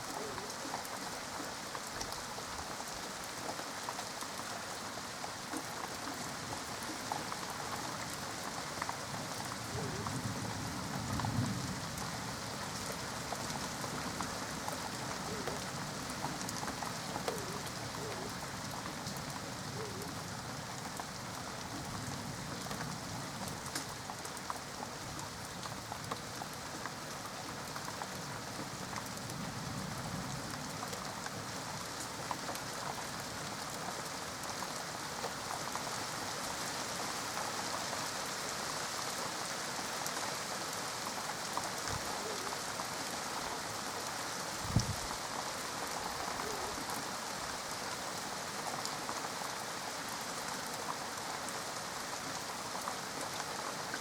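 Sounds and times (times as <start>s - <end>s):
steady rain falling: 0.0s - 54.0s
raindrop ticks: 5.3s - 31.4s.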